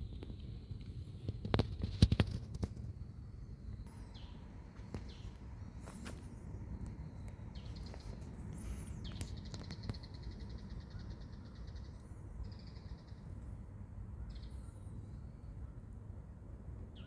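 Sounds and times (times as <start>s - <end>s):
low steady rumble: 0.0s - 1.5s
small birds calling: 3.2s - 13.5s, 14.1s - 15.9s.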